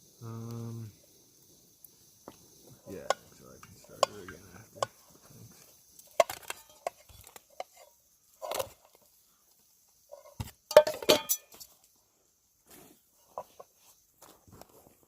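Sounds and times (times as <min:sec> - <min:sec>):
cookware clinking and knocking: 0:10.3 - 0:11.6.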